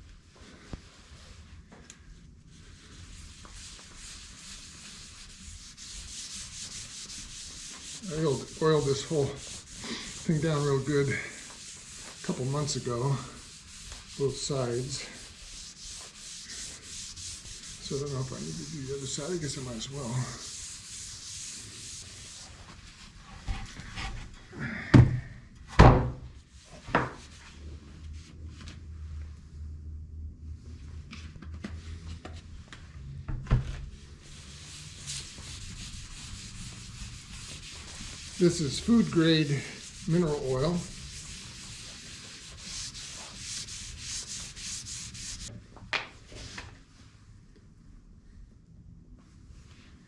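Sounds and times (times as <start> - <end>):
rubbing and handling noise: 0.2 - 24.4, 30.8 - 45.5.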